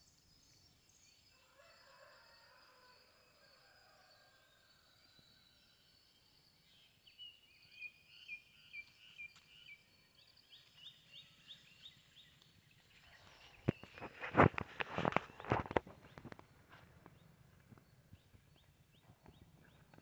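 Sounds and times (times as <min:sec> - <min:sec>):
bird chirping: 0:04.9 - 0:20.0
footfalls on dry ground: 0:13.2 - 0:17.8.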